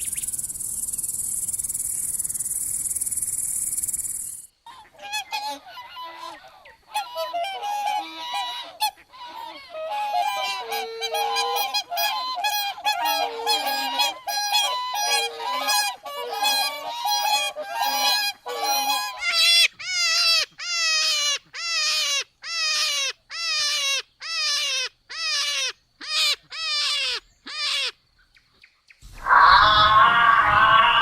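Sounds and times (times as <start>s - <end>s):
large waterfowl honking: 4.7s - 20.3s.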